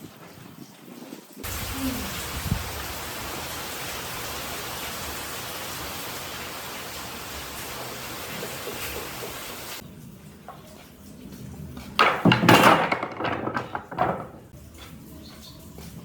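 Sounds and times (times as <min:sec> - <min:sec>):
steady hiss: 0:01.4 - 0:09.8
knocks and clattering: 0:11.8 - 0:14.6.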